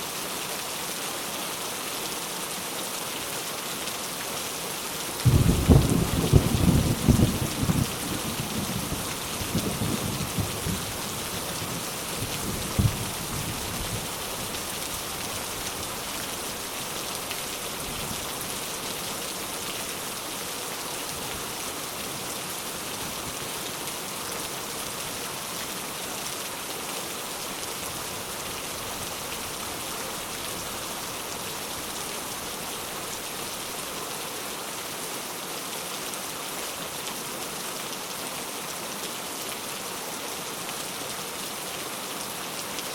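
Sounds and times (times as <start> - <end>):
steady rain falling: 0.0 - 42.9
low thunder rumble: 5.2 - 11.0, 12.2 - 14.1
sharp thunder clap: 5.3 - 7.9.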